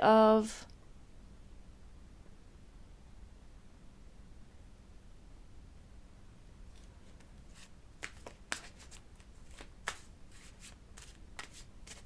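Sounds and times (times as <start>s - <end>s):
cards being shuffled: 6.7s - 12.0s.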